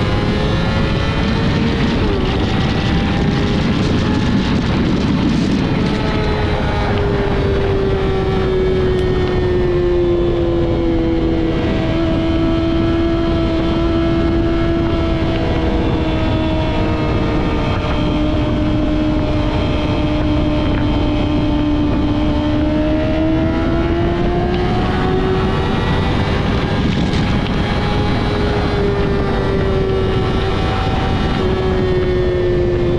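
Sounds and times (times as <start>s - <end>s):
motorcycle engine at high revs: 0.0s - 32.9s
wind rushing over microphone: 0.0s - 32.9s.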